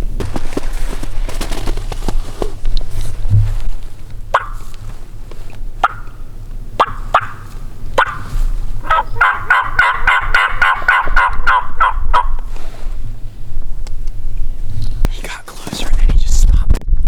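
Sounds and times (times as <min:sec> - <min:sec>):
short sharp turkey calls: 0:04.3 - 0:04.7, 0:05.8 - 0:06.2, 0:06.8 - 0:12.3
turkey gobbling: 0:04.3 - 0:04.8, 0:05.8 - 0:12.4.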